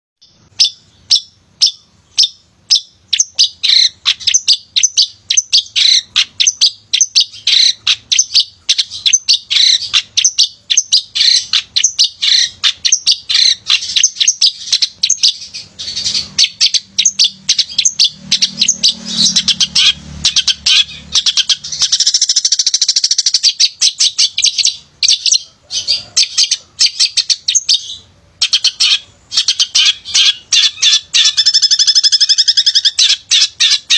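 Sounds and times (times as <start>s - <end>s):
bird singing sharp chirps: 0.2s - 33.9s.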